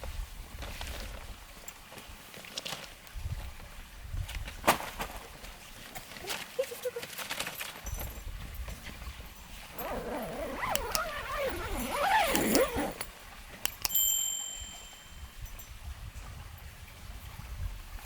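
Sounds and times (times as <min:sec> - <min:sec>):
short high ringing tone: 0:13.9 - 0:15.6.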